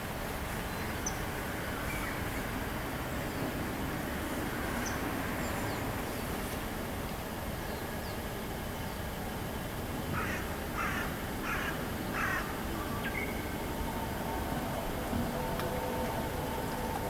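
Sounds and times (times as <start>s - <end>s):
distant traffic rumble: 9.5s - 17.0s.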